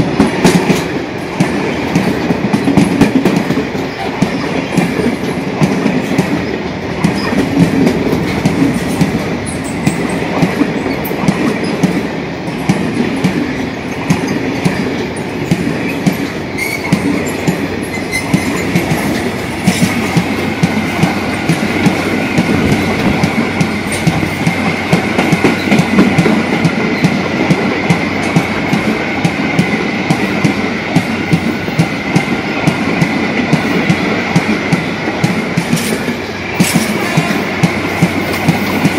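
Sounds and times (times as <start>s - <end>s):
train wheels clicking over rail joints: 0.0s - 38.9s
wheels squealing on rails: 3.7s - 5.4s, 6.0s - 12.7s, 13.5s - 27.3s, 35.6s - 38.9s.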